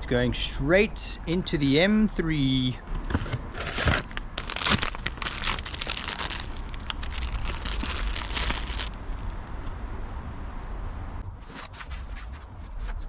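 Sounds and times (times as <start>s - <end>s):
packaging crinkling and tearing: 3.5s - 9.4s.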